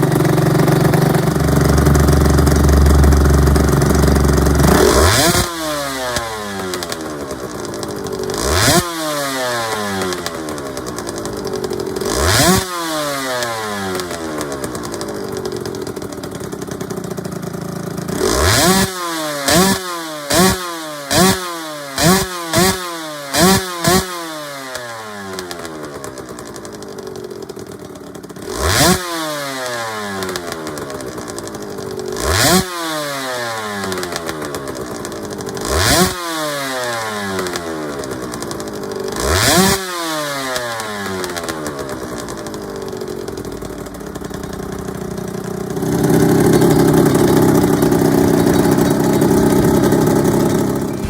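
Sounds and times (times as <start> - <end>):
motorcycle throttle blips: 0.0 - 8.8
motorcycle engine revving: 0.0 - 51.0.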